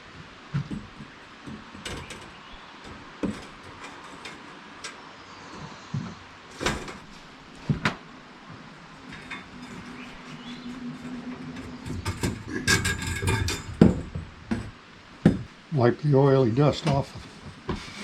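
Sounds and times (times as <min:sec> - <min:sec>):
metal knocks and clanks: 0:00.5 - 0:05.0, 0:06.5 - 0:08.0, 0:09.0 - 0:15.6.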